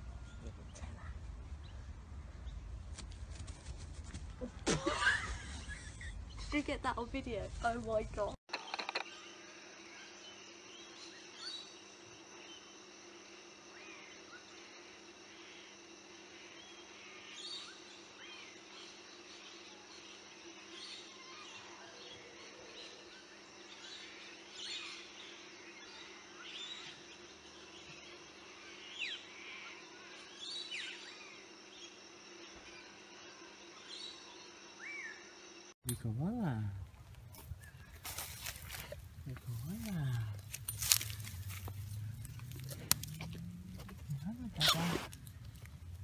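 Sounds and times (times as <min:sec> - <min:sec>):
outdoor hum: 0:00.0 - 0:46.0
birds chirping: 0:35.9 - 0:46.0.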